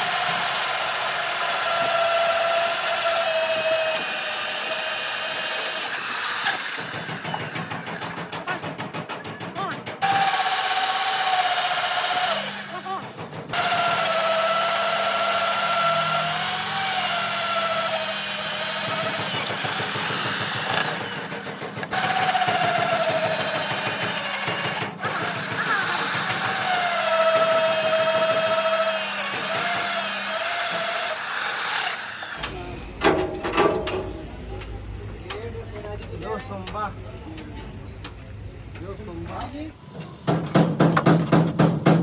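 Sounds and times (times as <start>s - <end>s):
electric drill whining: 0.0s - 8.5s, 10.0s - 32.6s.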